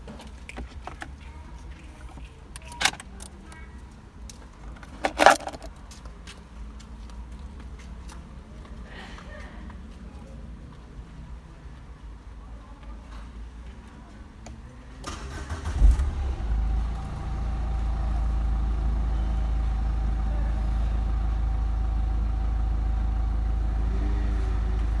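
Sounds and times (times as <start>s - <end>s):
car engine starter cranking: 4.8s - 5.7s, 15.0s - 20.2s
car engine idling: 15.1s - 25.0s.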